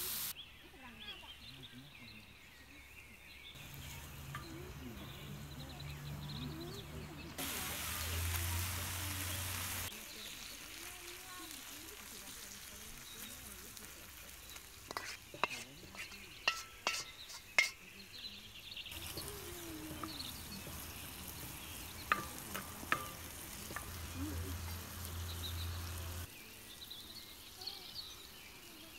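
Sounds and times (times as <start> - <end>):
chicken sizzling in a wok: 0.0 - 0.3, 3.6 - 28.9
wooden spatula knocking on pan: 19.0 - 25.1.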